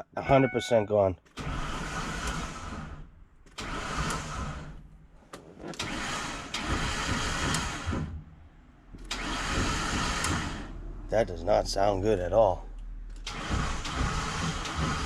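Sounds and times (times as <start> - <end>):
starter motor cranking: 1.2 - 4.9, 5.7 - 8.2, 9.0 - 10.7, 13.1 - 15.0.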